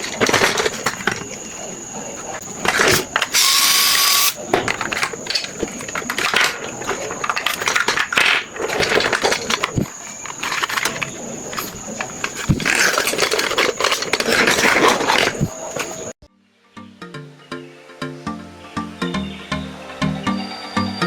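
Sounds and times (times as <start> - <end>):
plastic toy clicking and ratcheting: 2.8 - 11.7.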